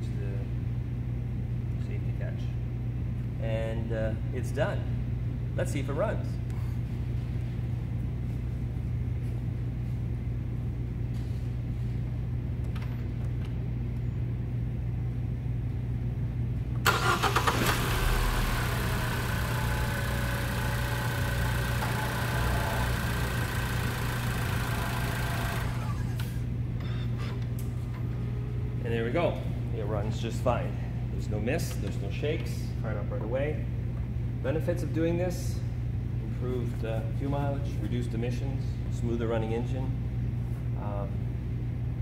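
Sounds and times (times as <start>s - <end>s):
steady low hum: 0.0s - 42.0s
car engine starting and running: 16.9s - 26.4s.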